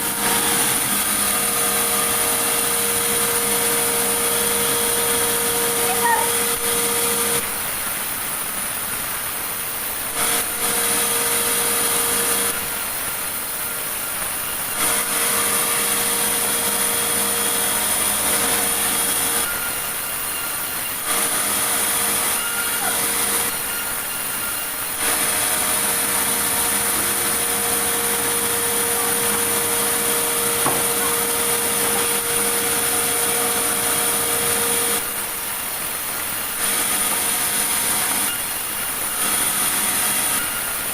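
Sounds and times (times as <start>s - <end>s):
saw cutting wood: 0.0s - 7.5s, 10.1s - 40.9s
machine hum: 0.0s - 40.9s.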